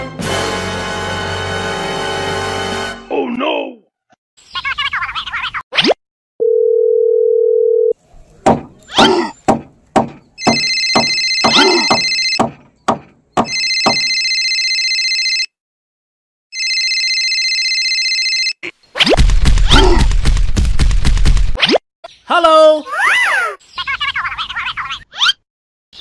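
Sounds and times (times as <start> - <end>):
electronic phone ringtone: 6.4 - 8.0, 10.4 - 12.4, 13.4 - 15.6, 16.5 - 18.6
telephone dial tone: 6.4 - 8.0, 10.6 - 12.4, 13.5 - 15.5, 16.6 - 18.6.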